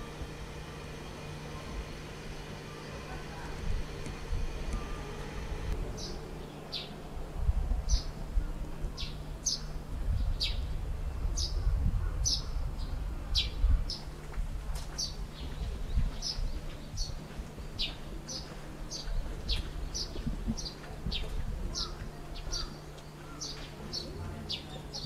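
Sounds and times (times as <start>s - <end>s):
low steady rumble: 0.0s - 25.0s
small birds chirping: 8.9s - 14.2s, 14.9s - 25.0s.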